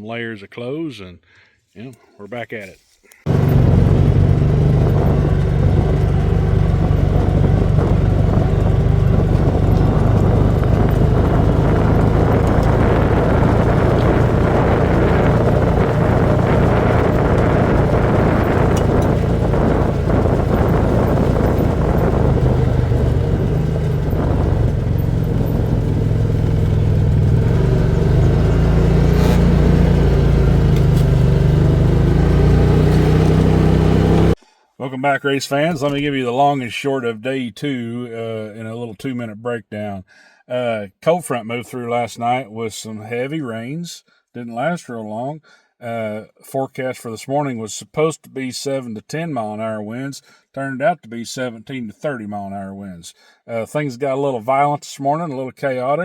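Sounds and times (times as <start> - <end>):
motor vehicle engine droning: 3.3 - 34.4
road noise: 3.3 - 34.4.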